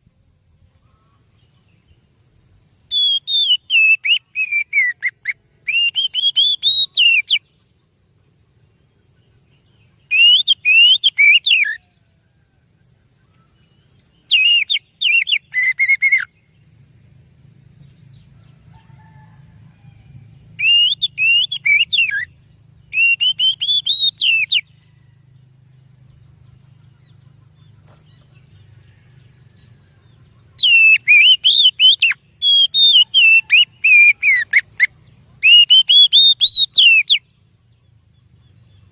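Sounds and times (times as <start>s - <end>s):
bird singing whistled phrases: 2.9s - 7.5s, 10.1s - 11.9s, 14.2s - 16.4s, 20.6s - 24.8s, 30.6s - 37.3s.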